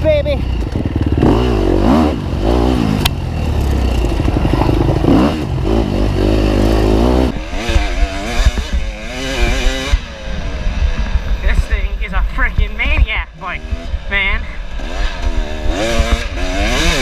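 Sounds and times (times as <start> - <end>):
dirt bike engine revving: 0.0 - 17.0
bike clattering over rough ground: 3.5 - 5.6.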